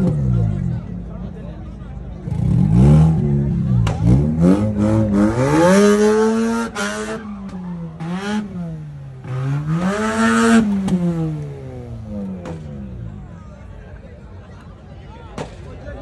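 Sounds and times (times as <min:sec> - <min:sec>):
rotary engine revving: 0:02.2 - 0:13.0.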